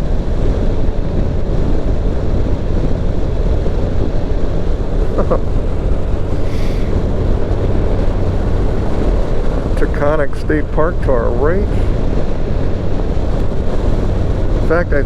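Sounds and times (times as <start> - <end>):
motorcycle engine running: 0.0 - 15.0
wind rush over microphone: 0.0 - 15.0.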